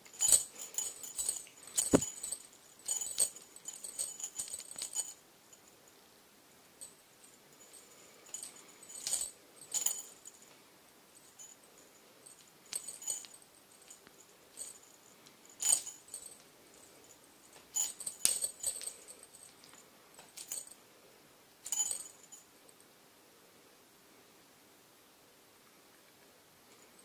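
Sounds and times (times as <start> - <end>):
small bell jingling: 0.0 - 5.8, 6.8 - 10.5, 11.2 - 20.8, 21.6 - 22.8.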